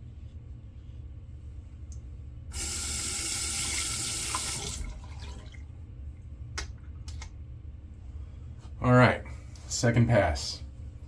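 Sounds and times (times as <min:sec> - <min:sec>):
tap water running into basin: 0:02.5 - 0:05.6.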